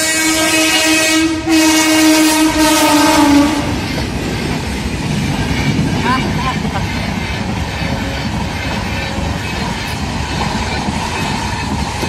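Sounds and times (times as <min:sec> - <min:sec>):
locomotive horn blast: 0:00.0 - 0:03.8
train coaches clickety-clack: 0:00.0 - 0:12.0.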